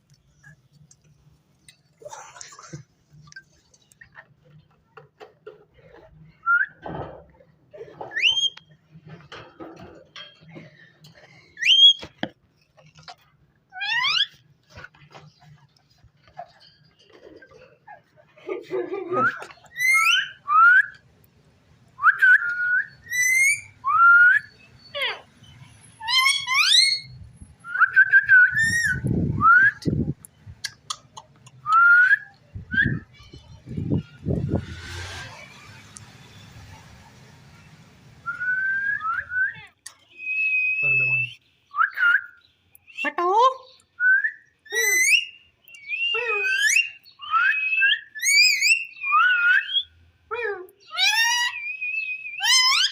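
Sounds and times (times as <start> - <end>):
parrot whistles and calls: 8.1 - 8.7, 11.6 - 12.0, 13.7 - 14.4, 19.7 - 21.0, 22.0 - 25.2, 26.0 - 29.9, 31.6 - 33.2, 40.2 - 43.1, 44.0 - 49.9, 50.8 - 52.9.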